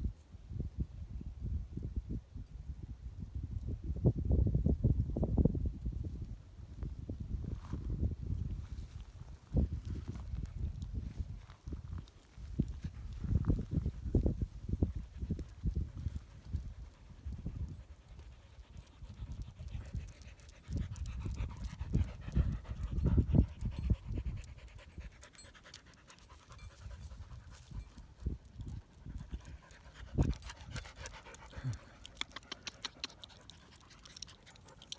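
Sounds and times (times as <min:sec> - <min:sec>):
dog panting: 0:14.9 - 0:34.9.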